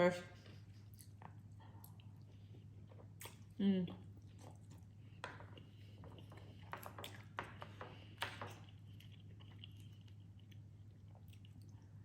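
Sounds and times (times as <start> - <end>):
close-up chewing: 0.4 - 12.0.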